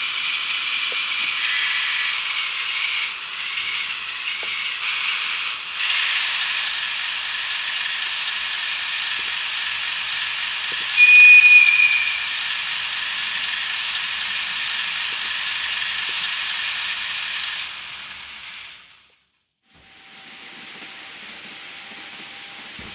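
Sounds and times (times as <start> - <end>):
high-pitched horn toot: 1.4 - 2.2, 11.0 - 12.6.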